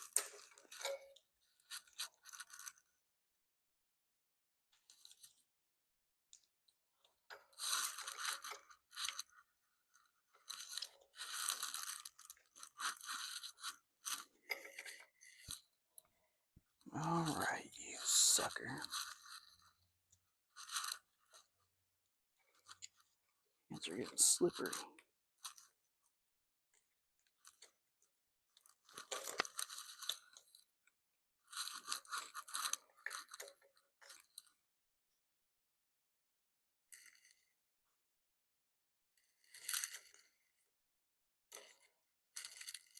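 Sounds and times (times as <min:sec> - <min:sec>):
crackling rustling handling noise: 0:00.0 - 0:02.9, 0:07.0 - 0:15.7, 0:17.0 - 0:21.6, 0:28.6 - 0:30.6, 0:31.4 - 0:34.6
scraping and rubbing of parts: 0:10.4 - 0:15.6
small clicks of parts: 0:28.6 - 0:30.7, 0:41.5 - 0:42.9.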